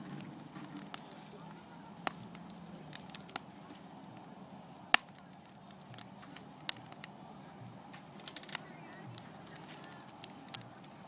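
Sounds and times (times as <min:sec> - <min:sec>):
fire crackling and popping: 0:00.0 - 0:11.0.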